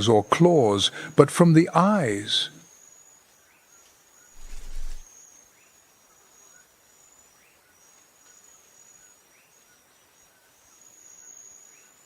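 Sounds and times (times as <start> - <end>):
insect trill: 0.2 - 12.0
short rising chirps: 4.4 - 5.0.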